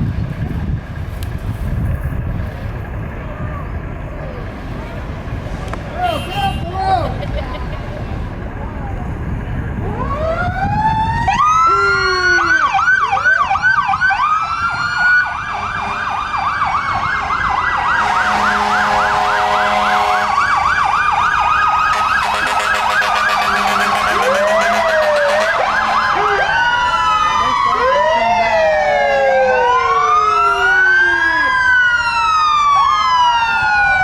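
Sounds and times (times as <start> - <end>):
fire truck sirens: 0.0 - 34.0
fire truck air horn: 6.0 - 6.8, 17.9 - 20.7, 21.8 - 26.7.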